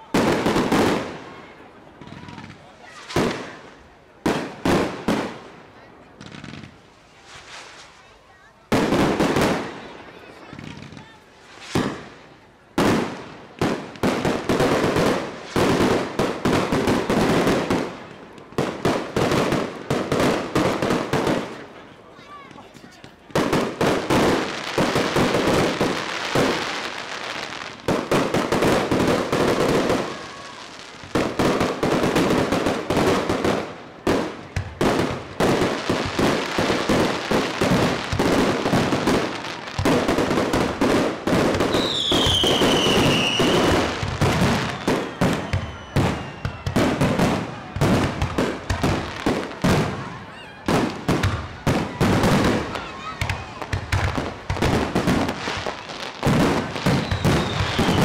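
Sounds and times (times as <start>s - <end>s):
fireworks bangs and crackles: 0.0s - 58.0s
falling firework whistle: 41.7s - 47.4s, 56.6s - 58.0s.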